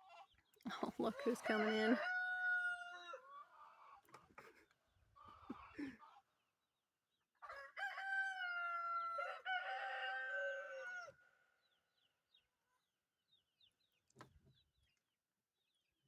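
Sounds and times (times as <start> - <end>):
rooster crowing: 1.2 - 3.2, 7.4 - 11.3.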